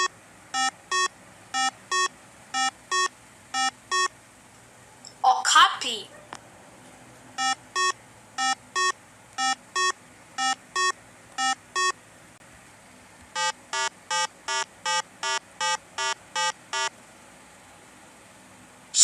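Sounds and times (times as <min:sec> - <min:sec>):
short electronic beeps: 0:00.0 - 0:04.1, 0:07.4 - 0:12.0, 0:13.4 - 0:16.9.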